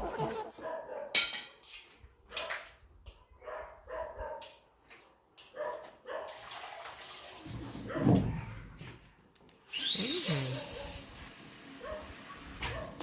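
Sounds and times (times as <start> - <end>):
animal calling: 0.0 - 0.6, 9.8 - 11.1.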